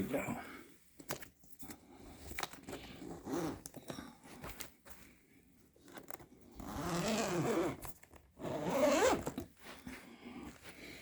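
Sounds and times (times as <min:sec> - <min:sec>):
zipper pulled open: 0:02.6 - 0:03.8, 0:05.9 - 0:09.5.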